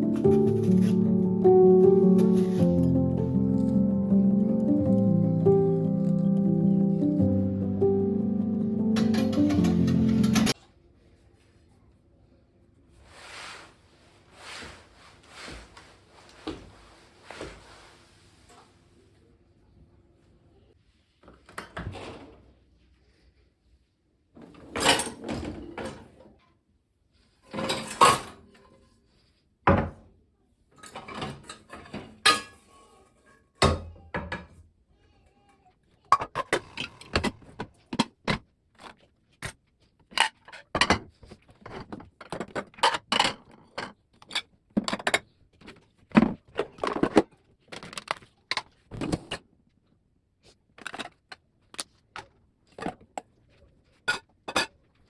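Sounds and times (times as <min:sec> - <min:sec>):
rustling and scraping: 0:00.0 - 0:03.8, 0:13.0 - 0:18.9.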